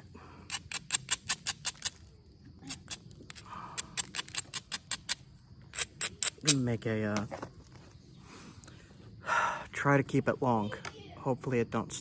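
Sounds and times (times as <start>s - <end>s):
stone-on-stone clicks: 0.5s - 7.3s.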